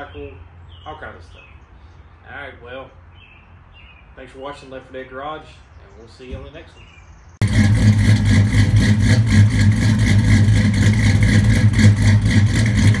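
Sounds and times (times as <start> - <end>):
car engine running: 7.4 - 13.0.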